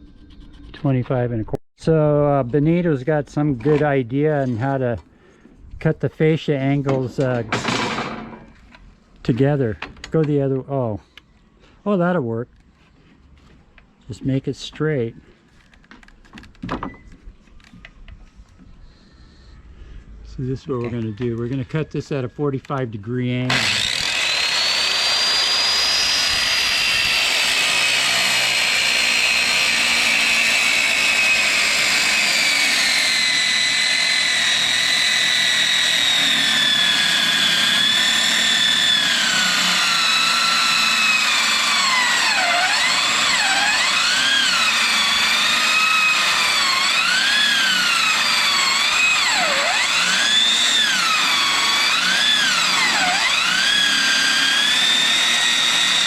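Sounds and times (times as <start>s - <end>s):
motor running with high whine: 23.5s - 53.8s.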